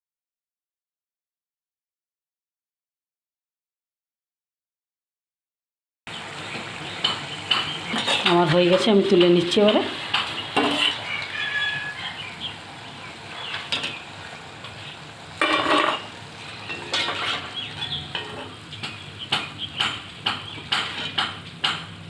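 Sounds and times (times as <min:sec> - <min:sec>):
food sizzling in frying oil: 0:06.1 - 0:22.0
spoon clinking and scraping pan: 0:07.0 - 0:08.4, 0:10.1 - 0:11.1, 0:15.4 - 0:19.0.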